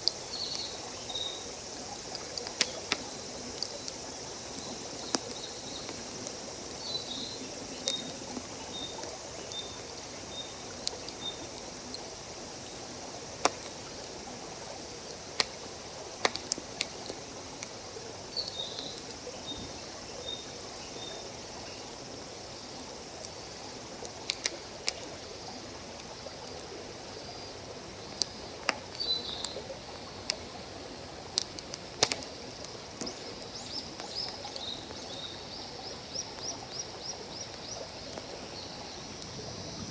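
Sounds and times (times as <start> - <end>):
campfire crackling and popping: 0.0 - 19.4, 24.0 - 25.1, 28.1 - 30.5, 31.2 - 35.3.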